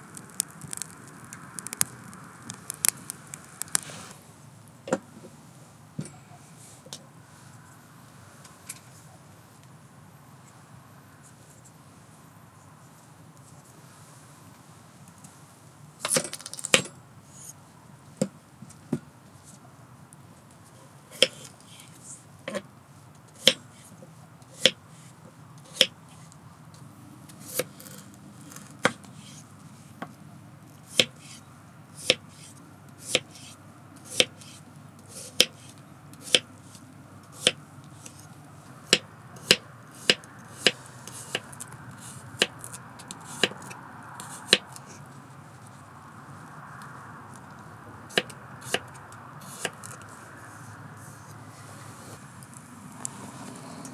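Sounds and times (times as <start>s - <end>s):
knife chopping on cutting board: 34.1s - 34.3s, 36.2s - 36.5s, 38.9s - 41.5s, 43.3s - 43.7s.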